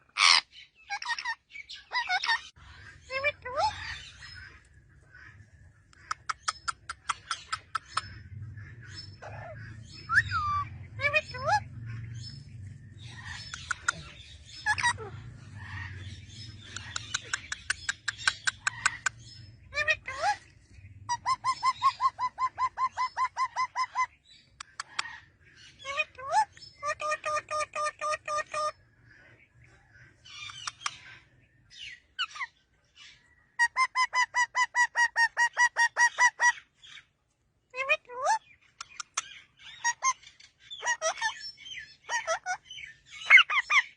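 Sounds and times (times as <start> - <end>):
parrot squawk: 0.1 - 4.2, 9.0 - 12.3, 13.1 - 20.4, 21.1 - 28.7, 33.6 - 36.6, 37.8 - 43.9
parrot whistled calls: 9.2 - 11.6.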